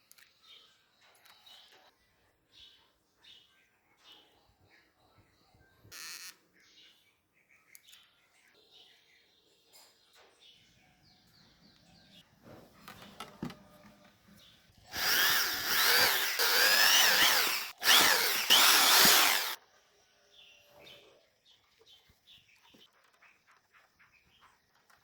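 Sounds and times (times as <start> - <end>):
handheld power tool motor: 14.9 - 19.6.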